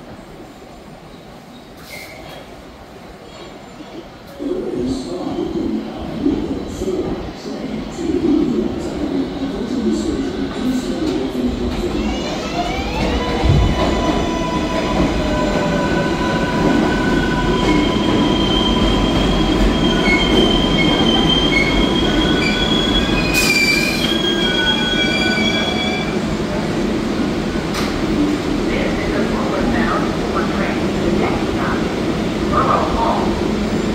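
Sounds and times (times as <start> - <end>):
train wheels squealing: 17.2 - 26.2.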